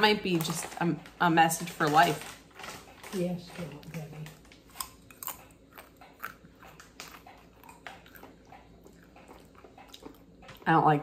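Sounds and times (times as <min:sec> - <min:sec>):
person chewing crunchy chips: 0:04.5 - 0:10.7.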